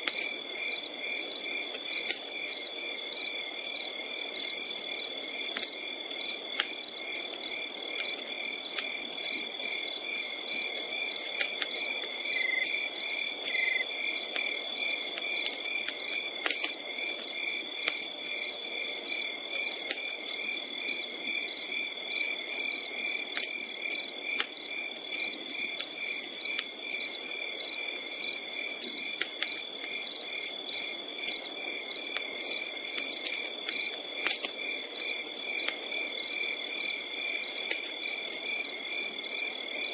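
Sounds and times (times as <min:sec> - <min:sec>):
campfire crackling: 0:00.0 - 0:39.9
crickets chirping: 0:00.1 - 0:39.9
high insect trill: 0:29.0 - 0:33.8.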